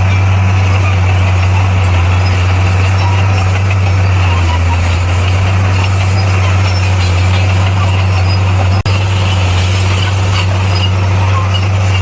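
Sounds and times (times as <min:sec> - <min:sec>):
heavy diesel engine droning: 0:00.0 - 0:12.0.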